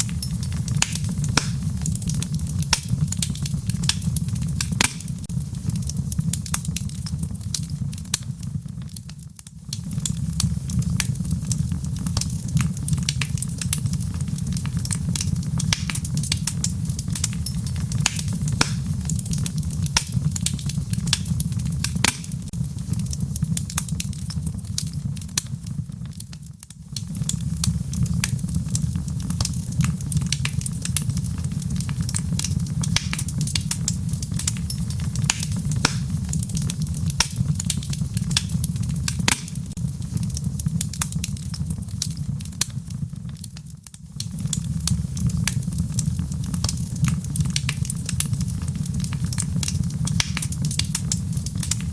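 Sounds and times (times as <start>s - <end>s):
low rumble of flames: 0.0s - 51.9s
wood fire pops and snaps: 0.0s - 51.9s.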